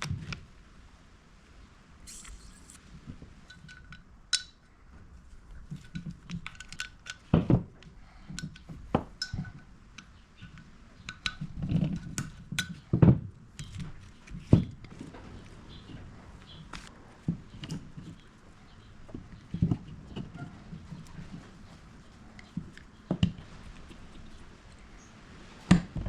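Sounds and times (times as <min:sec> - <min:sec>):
metal parts and tools clinking: 0:03.4 - 0:04.6.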